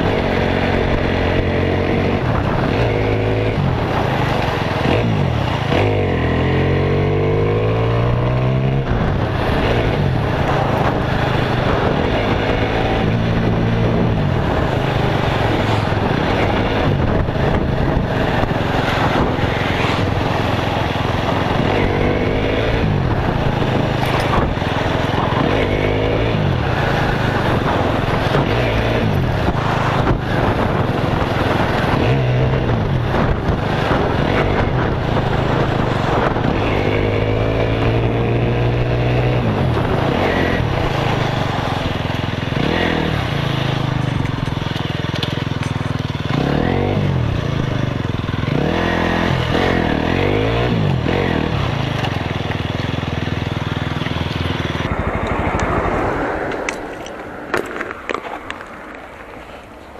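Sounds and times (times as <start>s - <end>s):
motorcycle engine revving: 0.0s - 59.9s
road and wind noise: 0.0s - 59.9s.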